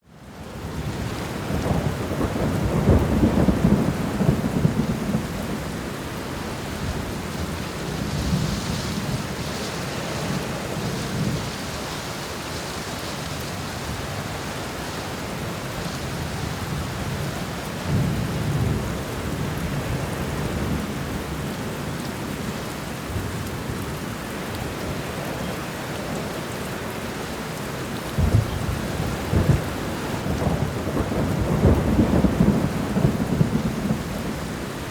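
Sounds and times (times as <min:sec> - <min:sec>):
steady rain falling: 0:00.0 - 0:34.9
low rolling thunder: 0:00.6 - 0:12.2, 0:15.3 - 0:21.5, 0:28.0 - 0:34.9.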